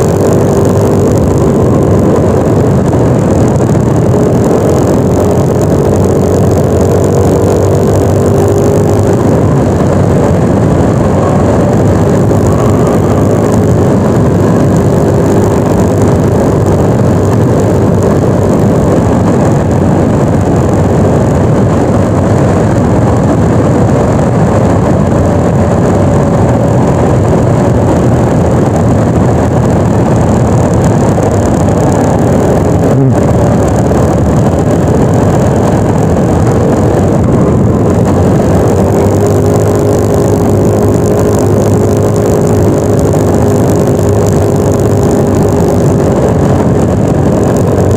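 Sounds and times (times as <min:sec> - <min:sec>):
scooter engine droning: 0:00.0 - 0:47.9
wind and road noise: 0:00.0 - 0:47.9.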